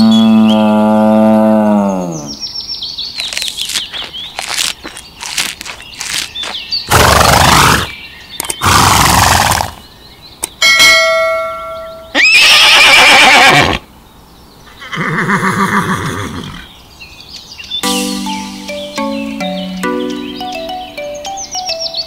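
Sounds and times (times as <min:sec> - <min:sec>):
horses neighing: 0:06.9 - 0:07.9, 0:08.6 - 0:09.8, 0:12.2 - 0:13.8, 0:14.7 - 0:16.7
bell ringing: 0:17.8 - 0:21.9.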